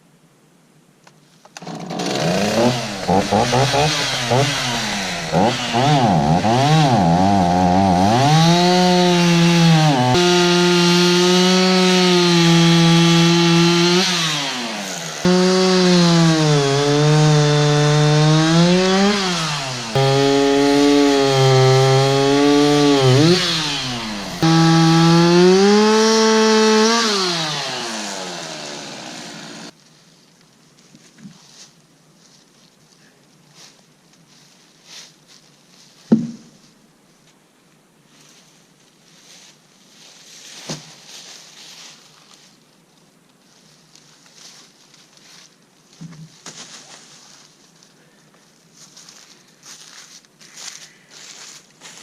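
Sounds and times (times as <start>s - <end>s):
chainsaw cutting wood: 1.6s - 29.7s.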